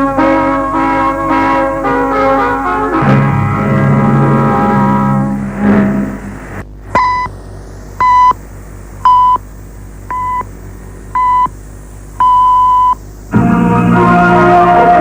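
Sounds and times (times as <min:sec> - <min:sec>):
music: 0:00.0 - 0:06.5, 0:13.3 - 0:15.0
shortwave hum and hiss: 0:00.0 - 0:15.0
radio time signal beeps: 0:07.0 - 0:07.3, 0:08.0 - 0:08.4, 0:09.1 - 0:09.4, 0:10.1 - 0:10.5, 0:11.2 - 0:11.6, 0:12.2 - 0:13.0.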